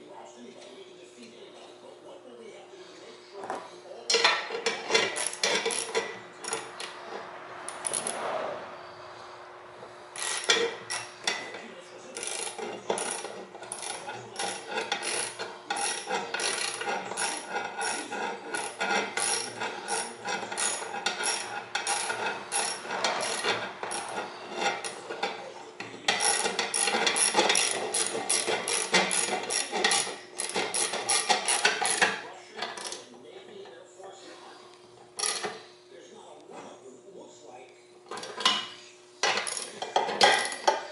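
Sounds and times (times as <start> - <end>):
ratchet wrench clicking: 10.2 - 11.5, 12.1 - 25.4, 26.1 - 33.0, 35.2 - 35.6.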